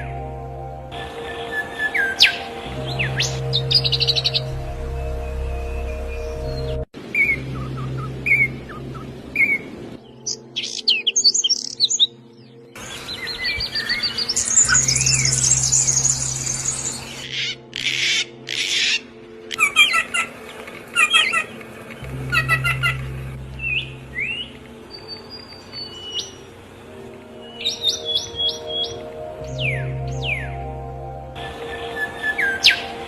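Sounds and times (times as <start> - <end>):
low hum: 0.0 - 10.6, 21.6 - 27.4
bird trill: 0.0 - 33.0
small birds chirping: 1.0 - 30.8.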